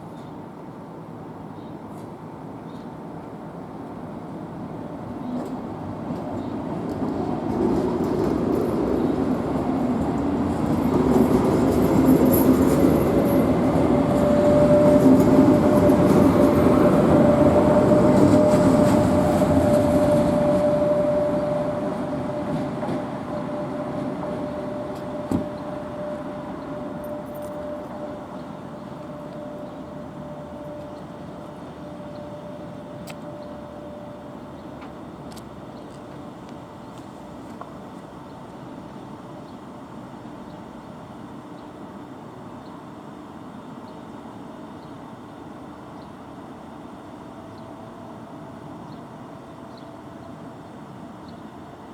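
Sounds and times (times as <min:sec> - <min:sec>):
train running rumble: 0:03.2 - 0:42.6.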